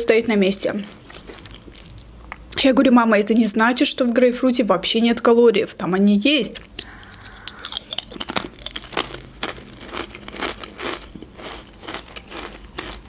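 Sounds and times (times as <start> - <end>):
crunching chip: 6.8 - 13.0.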